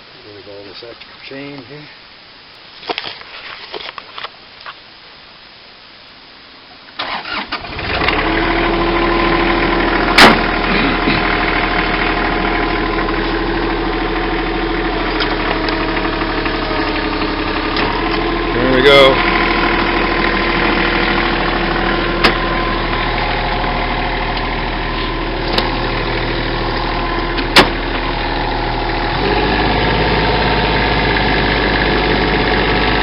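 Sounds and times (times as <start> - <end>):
diesel engine starting and idling: 7.0 - 33.0.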